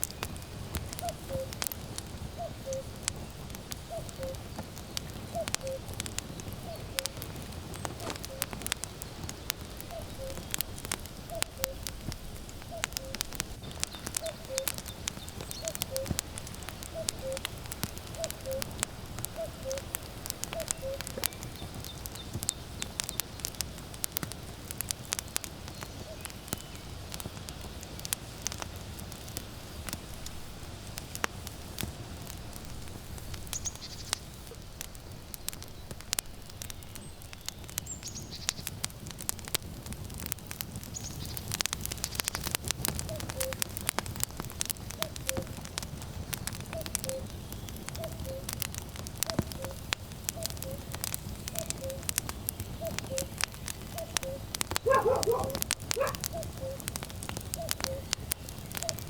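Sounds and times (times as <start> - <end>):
firewood crackling and popping: 0.0 - 59.0
cuckoo calling: 1.0 - 1.6, 2.4 - 3.0, 3.9 - 4.5, 5.3 - 5.9, 6.6 - 8.6, 9.8 - 10.5, 11.3 - 11.8, 12.7 - 13.3, 13.9 - 16.2, 16.9 - 17.5, 18.2 - 18.8, 19.4 - 21.4, 43.1 - 43.7, 45.0 - 45.6, 46.8 - 47.4, 48.0 - 48.6, 49.3 - 50.9, 51.5 - 52.1, 52.8 - 56.9, 57.6 - 58.2, 58.8 - 59.0.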